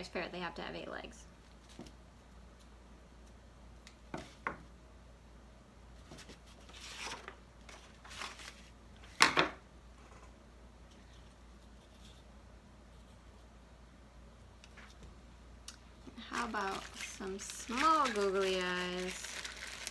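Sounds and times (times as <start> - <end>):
rustling craft materials: 6.0 - 9.2, 16.0 - 19.9.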